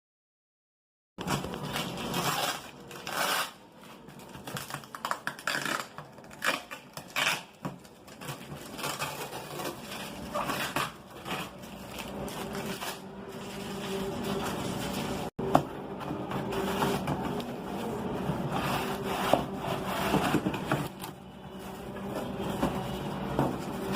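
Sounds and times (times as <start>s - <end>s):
cardboard box scraping and rustling: 16.1s - 23.9s.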